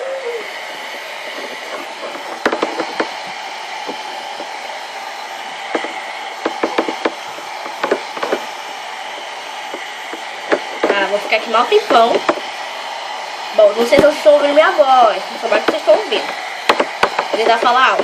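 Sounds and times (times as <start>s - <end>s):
hair dryer running: 0.0s - 18.0s
handling clicks and knocks: 1.4s - 3.1s.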